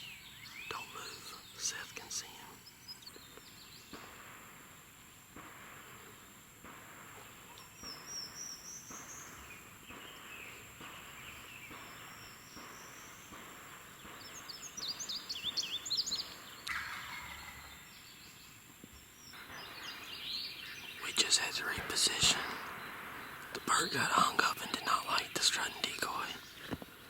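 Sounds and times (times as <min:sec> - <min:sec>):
small bird chirping: 0:00.0 - 0:05.0, 0:07.0 - 0:27.0
turkey gobbling: 0:16.3 - 0:17.9.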